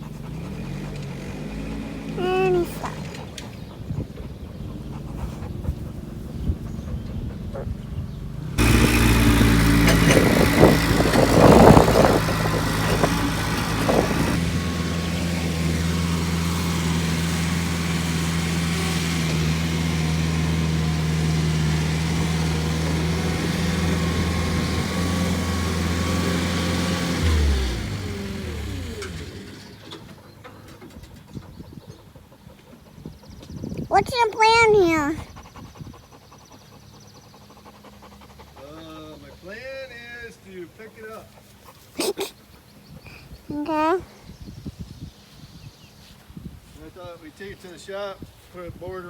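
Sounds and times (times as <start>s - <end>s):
vehicle engine running: 0.0s - 31.2s.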